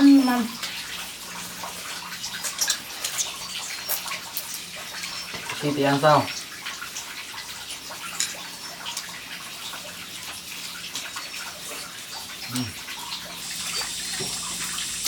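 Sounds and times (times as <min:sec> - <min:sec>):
water running and splashing: 0:00.0 - 0:15.0
small clicks and drips: 0:00.6 - 0:15.0.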